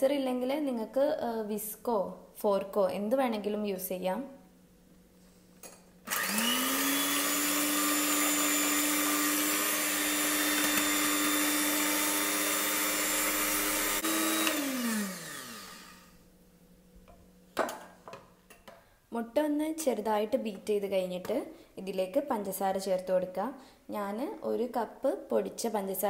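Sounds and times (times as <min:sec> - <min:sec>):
electric hand mixer whining: 0:06.1 - 0:16.2.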